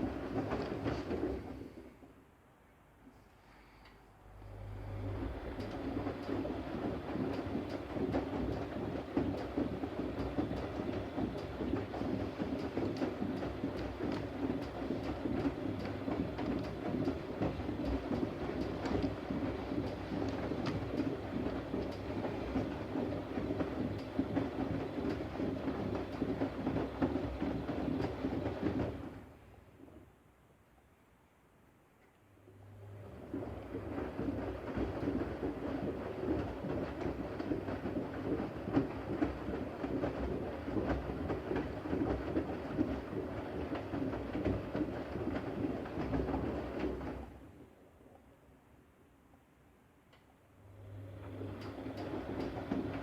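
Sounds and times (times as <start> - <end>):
washing machine churning: 0.0 - 2.1, 4.3 - 30.0, 32.4 - 48.4, 50.4 - 53.0.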